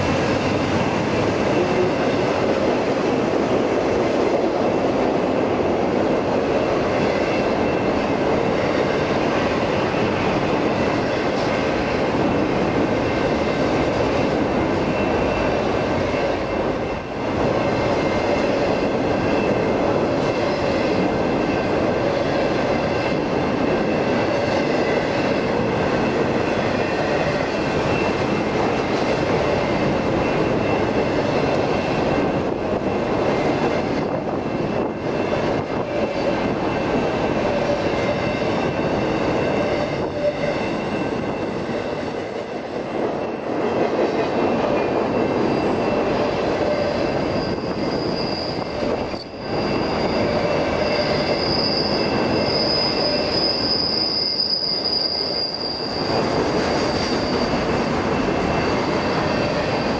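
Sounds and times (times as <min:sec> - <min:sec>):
steel wheels rumbling on rail: 0:00.0 - 0:59.9
high-pitched wheel squeal: 0:37.4 - 0:43.9, 0:45.2 - 0:59.9.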